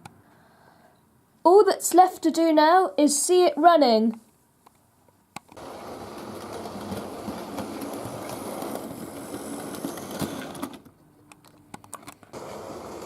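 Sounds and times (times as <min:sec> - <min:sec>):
model train motor rumbling: 0:05.6 - 0:10.9, 0:12.4 - 0:13.0.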